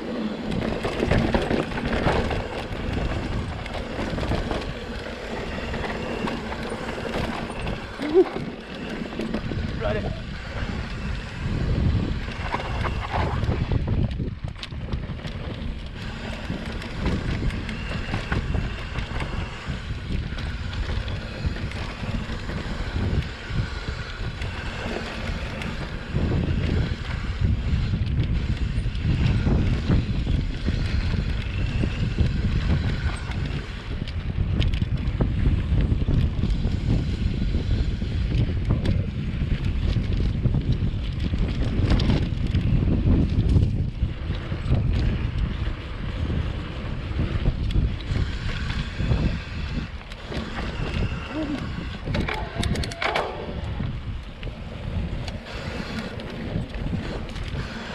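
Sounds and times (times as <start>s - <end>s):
wind buffeting microphone: 0.0s - 57.9s
bike knocks and rattles: 24.5s - 57.8s.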